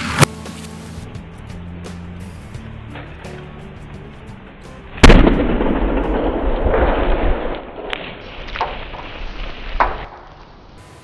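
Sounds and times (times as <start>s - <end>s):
sharp cracks and thuds: 5.0s - 10.4s.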